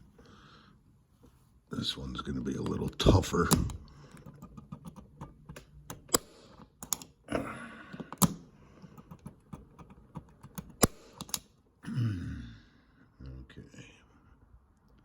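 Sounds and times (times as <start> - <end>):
small clicks and taps of tools: 3.5 - 7.1, 7.9 - 11.5.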